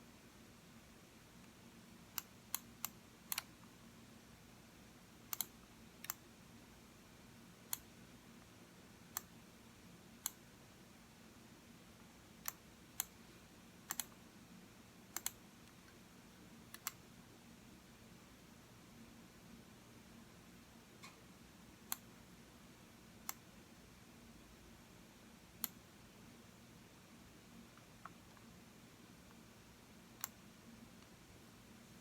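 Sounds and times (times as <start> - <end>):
faint steady hum: 0.0 - 32.0
computer mouse clicking: 2.1 - 3.7, 5.3 - 6.2, 7.7 - 7.9, 9.1 - 9.3, 10.2 - 10.4, 12.4 - 13.2, 13.9 - 14.2, 15.1 - 16.0, 16.7 - 17.0, 21.9 - 22.1, 23.2 - 23.4, 25.6 - 25.8, 30.2 - 30.4.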